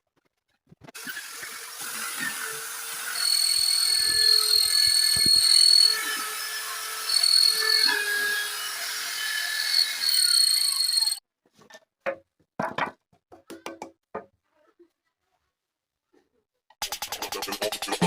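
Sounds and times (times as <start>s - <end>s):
power tool whining on wood: 1.0s - 11.2s.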